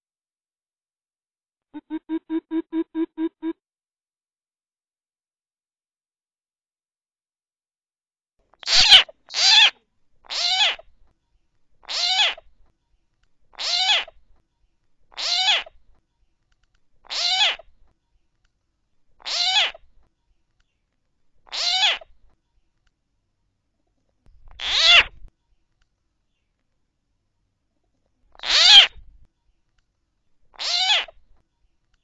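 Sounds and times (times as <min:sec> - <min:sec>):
recorded bird calls: 0:08.6 - 0:11.1, 0:11.8 - 0:12.6, 0:13.4 - 0:14.4, 0:15.0 - 0:16.0, 0:16.9 - 0:17.9, 0:19.1 - 0:22.3, 0:24.3 - 0:26.6, 0:28.3 - 0:29.6, 0:30.5 - 0:31.8.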